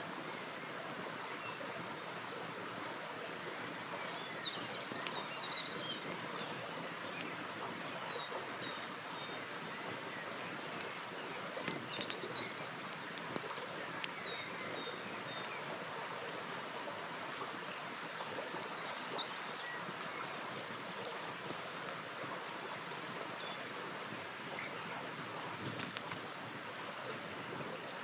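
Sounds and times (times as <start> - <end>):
river flowing: 0.0 - 28.0
campfire crackling and popping: 10.0 - 18.8, 25.5 - 26.4.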